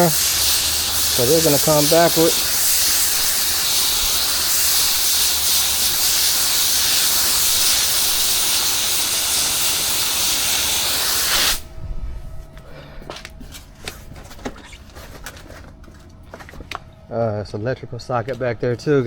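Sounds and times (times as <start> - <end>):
pressure washer spray hissing: 0.0 - 11.6.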